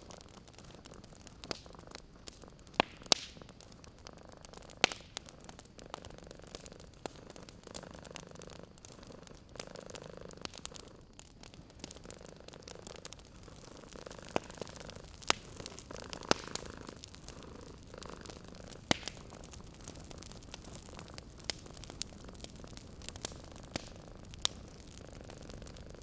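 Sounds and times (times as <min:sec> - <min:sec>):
wood fire crackling and popping: 0:00.0 - 0:26.0
cat purring: 0:05.2 - 0:26.0.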